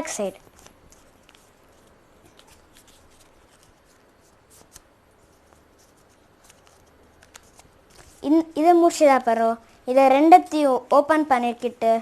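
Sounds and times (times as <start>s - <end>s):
paper rustling being folded: 0.1s - 8.6s.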